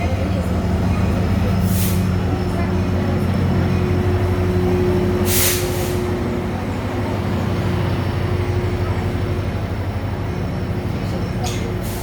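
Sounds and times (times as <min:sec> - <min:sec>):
diesel locomotive engine hum: 0:00.0 - 0:12.0
air brake hiss: 0:01.7 - 0:02.1, 0:05.2 - 0:06.0.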